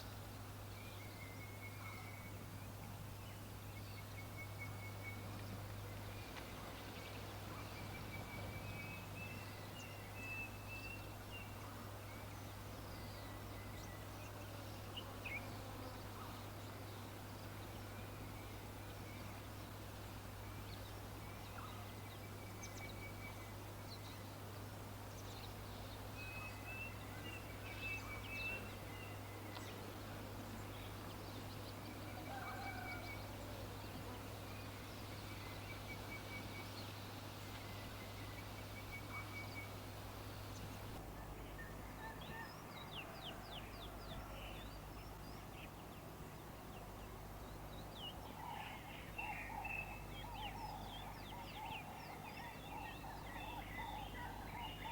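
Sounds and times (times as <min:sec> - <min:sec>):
birds chirping: 0:30.4 - 0:54.9
lower bird calls: 0:30.6 - 0:33.6, 0:34.5 - 0:45.8, 0:47.5 - 0:54.9.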